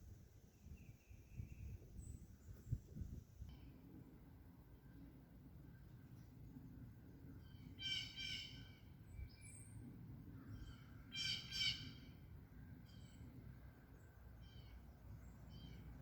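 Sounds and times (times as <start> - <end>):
bird calling loudly: 7.8 - 8.8, 11.1 - 12.1.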